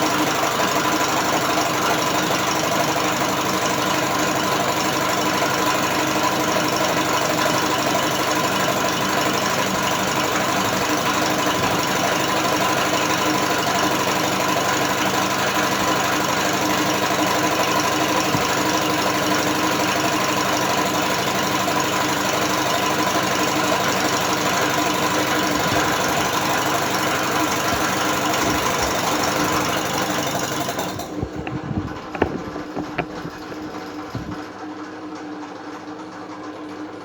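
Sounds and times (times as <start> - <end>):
knocks and clicks: 25.4 - 34.5.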